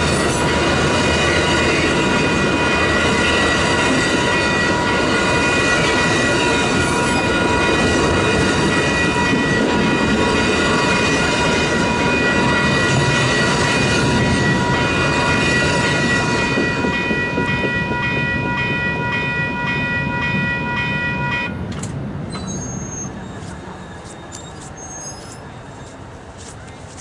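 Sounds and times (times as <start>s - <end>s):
electronic crossing bell ringing: 0.0s - 21.6s
passenger train rumbling: 0.0s - 27.0s.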